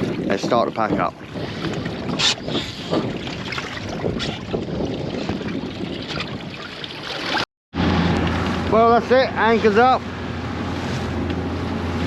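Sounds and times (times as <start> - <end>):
water moving around boat: 0.0 - 12.0
wind buffeting microphone: 0.0 - 12.0.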